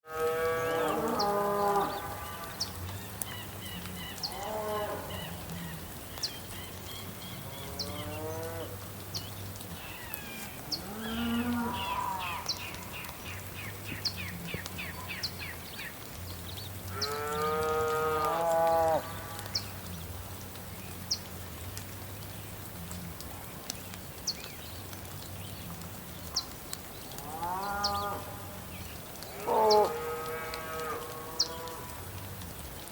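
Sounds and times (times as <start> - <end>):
cattle mooing: 10.8 - 12.4.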